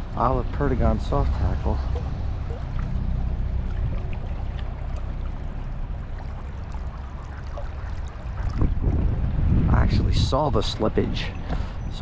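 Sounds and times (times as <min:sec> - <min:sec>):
river current rushing: 0:00.0 - 0:09.5.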